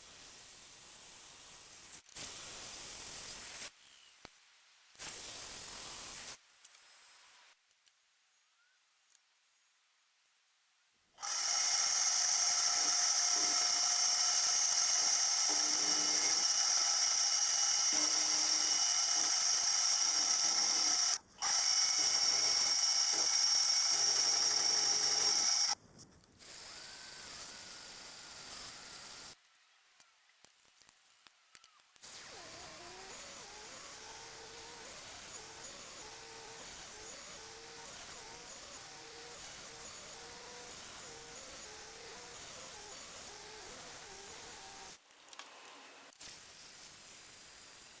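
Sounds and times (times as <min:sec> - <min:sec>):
high-pitched running sound: 0:11.2 - 0:25.8
machine tool high whine: 0:11.2 - 0:25.8.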